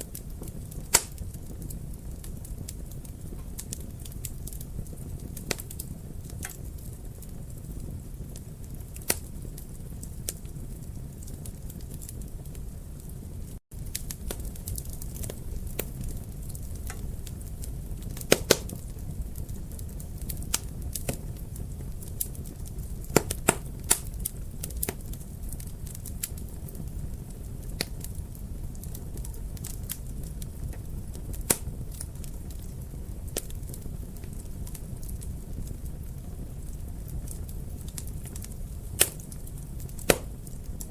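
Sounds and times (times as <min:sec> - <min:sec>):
low rumble of flames: 0:00.0 - 0:40.9
wood fire crackling: 0:00.0 - 0:40.9
sharp pops: 0:00.9 - 0:01.2, 0:18.3 - 0:18.8, 0:23.2 - 0:24.1, 0:40.0 - 0:40.4.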